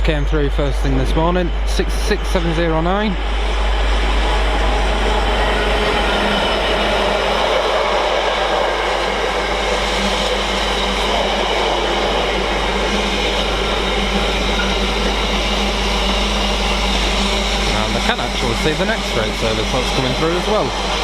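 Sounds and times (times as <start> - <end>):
low steady hum: 12.2 - 21.0.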